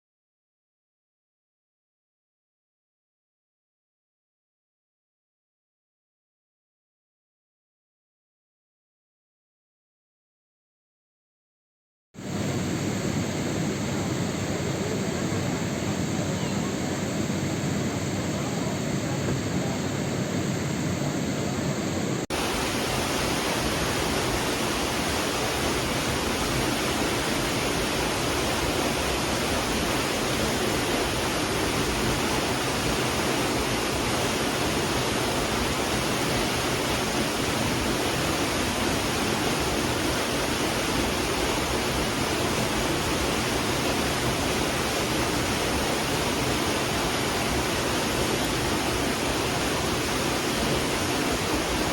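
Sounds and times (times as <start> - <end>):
rushing water: 22.2 - 51.9.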